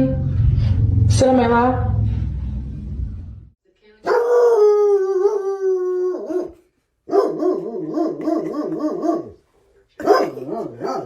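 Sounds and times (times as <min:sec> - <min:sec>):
dog howling and whining: 0:04.1 - 0:09.4.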